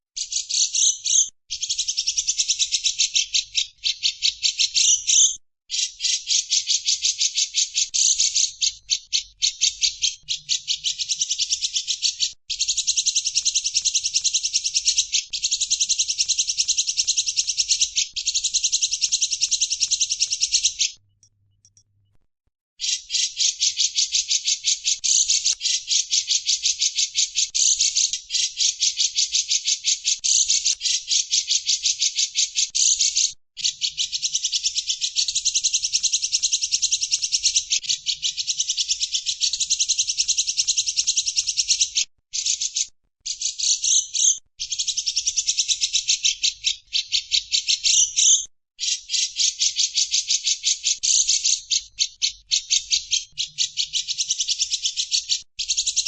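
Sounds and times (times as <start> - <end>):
recorded songbirds chirping: 0.2 - 22.2, 22.8 - 56.0.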